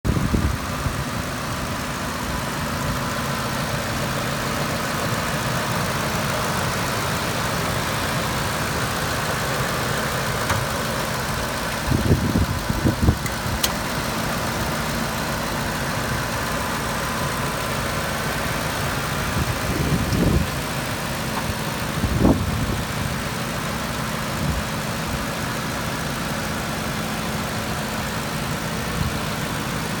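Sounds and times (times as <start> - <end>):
truck engine idling: 0.0 - 30.0.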